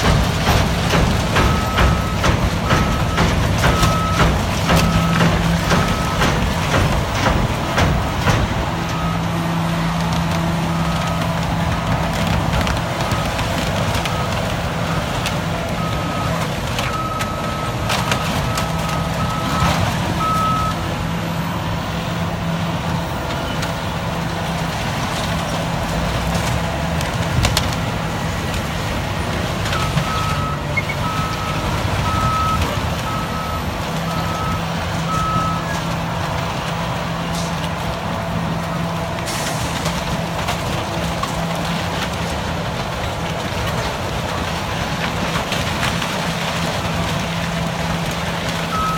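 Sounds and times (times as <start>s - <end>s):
bulldozer diesel engine running: 0.0s - 48.9s
reversing alarm beeping: 0.1s - 9.5s, 15.7s - 21.6s, 29.7s - 35.9s, 48.7s - 48.9s.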